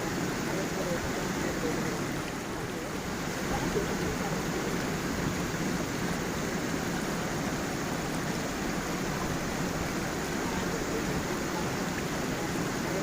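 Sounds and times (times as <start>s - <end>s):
stream over small waterfall: 0.0s - 13.0s.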